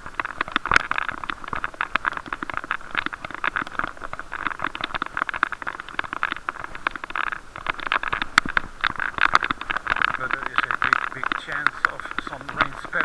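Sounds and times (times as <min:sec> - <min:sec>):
muffled riding hiss: 0:00.0 - 0:13.0.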